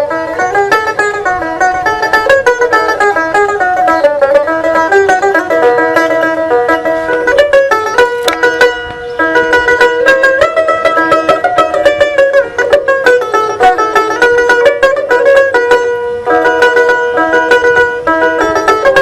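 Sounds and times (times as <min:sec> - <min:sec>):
plucked lute melody: 0:00.0 - 0:19.0.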